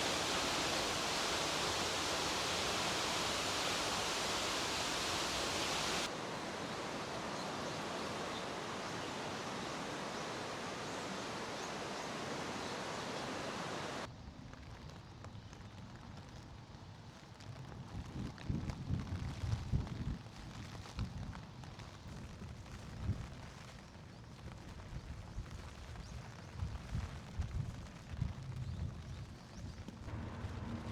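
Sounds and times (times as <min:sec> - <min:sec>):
waterfall rushing: 0:00.0 - 0:14.1, 0:30.1 - 0:30.9
quiet outdoor ambience: 0:00.0 - 0:18.0, 0:21.4 - 0:30.9.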